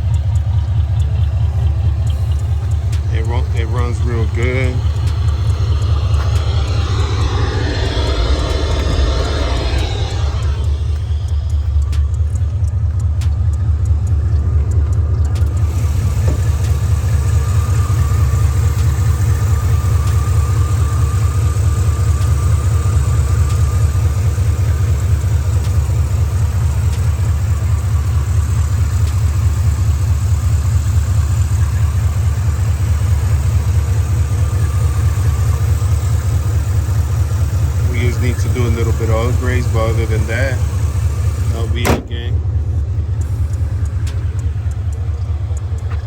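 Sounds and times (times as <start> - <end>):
faint clicks: 0.0 - 16.8, 42.2 - 46.0
car engine idling: 0.0 - 46.0.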